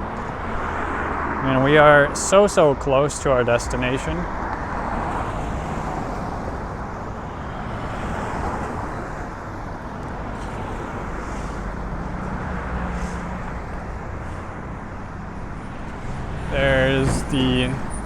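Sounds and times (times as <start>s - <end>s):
passing cars traffic: 0.0s - 18.0s.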